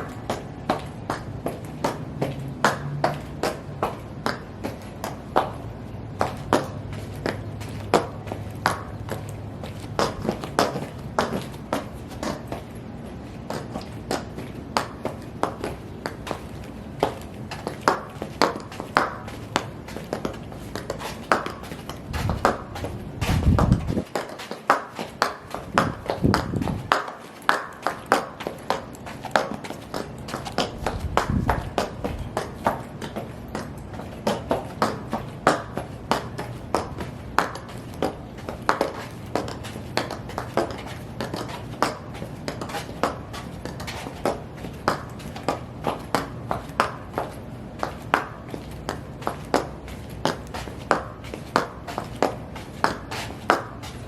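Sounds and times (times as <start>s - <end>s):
high heel clicks: 0.0s - 54.0s.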